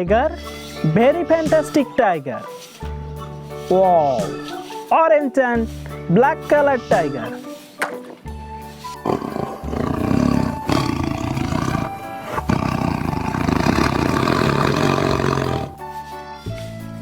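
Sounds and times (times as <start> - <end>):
background music: 0.0 - 17.0
tiger roaring: 8.9 - 15.8.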